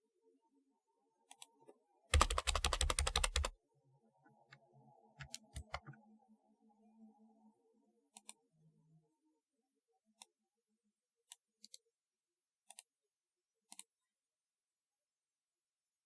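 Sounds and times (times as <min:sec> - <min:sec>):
keyboard key clicks: 0:02.2 - 0:03.5, 0:05.2 - 0:06.0.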